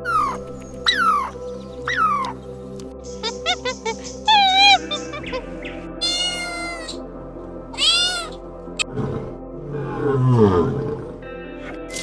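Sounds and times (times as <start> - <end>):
background music: 0.0 - 12.0
cat meowing: 6.0 - 7.0, 7.8 - 8.4.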